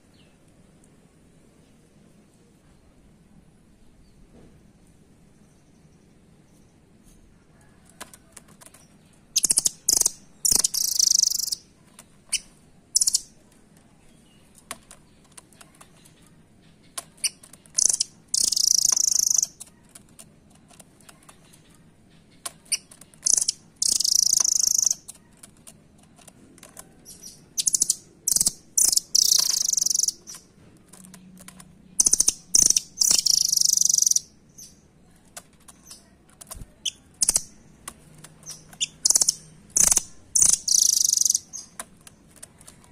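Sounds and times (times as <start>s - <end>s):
sharp clicks: 7.9s - 13.8s, 14.5s - 34.7s, 35.3s - 42.9s
bird rapid high chirping: 8.8s - 13.4s, 14.2s - 19.8s, 21.2s - 25.2s, 27.0s - 30.5s, 31.9s - 34.8s, 36.7s - 37.8s, 38.4s - 41.8s.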